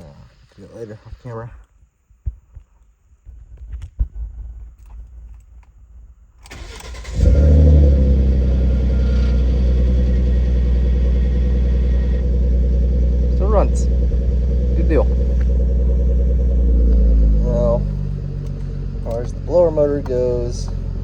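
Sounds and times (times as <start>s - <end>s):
car engine starting and idling: 6.4s - 21.0s.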